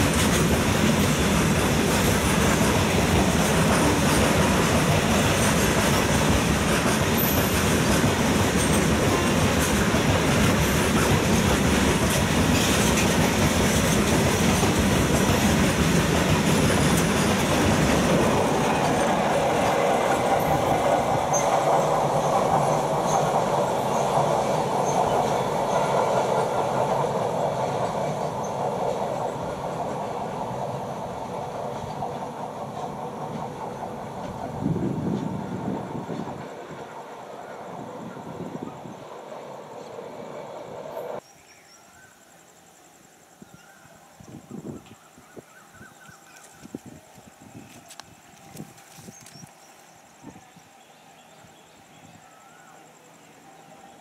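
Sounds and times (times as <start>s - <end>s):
freight train wheels clacking: 0.0s - 41.2s.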